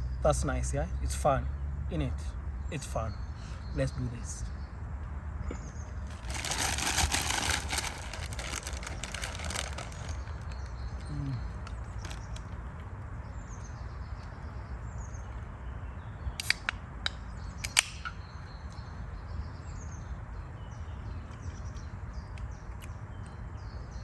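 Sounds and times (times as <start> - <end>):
small birds chirping: 0.0 - 24.0
sharp clicks: 16.4 - 18.2.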